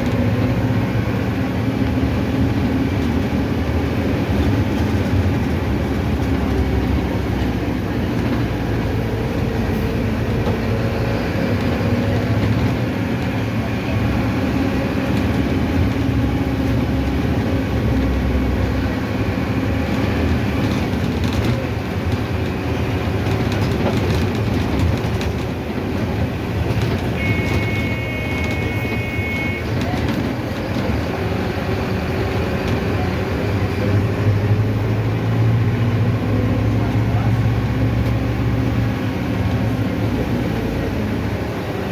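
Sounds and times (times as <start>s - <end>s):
bus engine drone: 0.0s - 41.9s
road rumble and rattling: 0.0s - 41.9s
high electronic beep: 27.2s - 29.7s.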